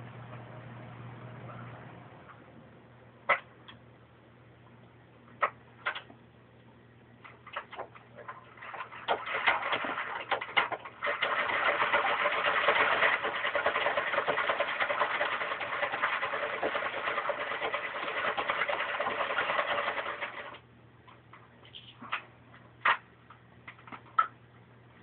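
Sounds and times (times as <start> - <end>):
toy sewing machine clattering: 8.6 - 20.6.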